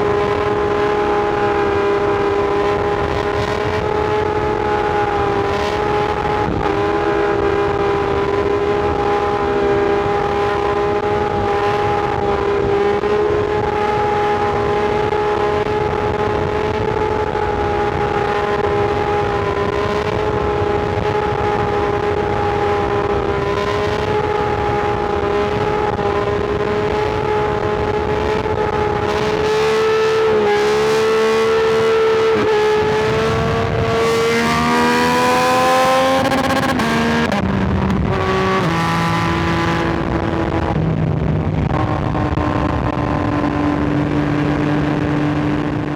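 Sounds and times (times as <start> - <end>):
motorcycle engine accelerating: 0.0 - 45.9
wind rush: 24.2 - 45.9.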